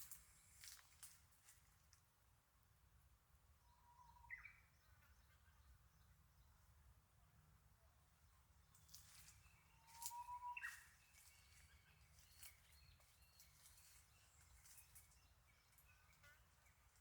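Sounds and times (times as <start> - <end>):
birds chirping: 8.7 - 17.0.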